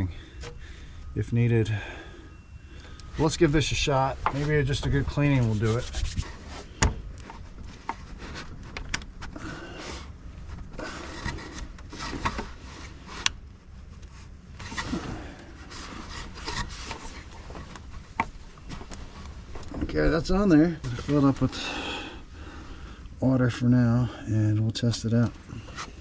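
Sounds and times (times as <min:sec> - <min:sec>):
sandpaper rubbing on pipe: 0:05.3 - 0:06.7
clicks and knocks of parts handled: 0:06.8 - 0:09.4.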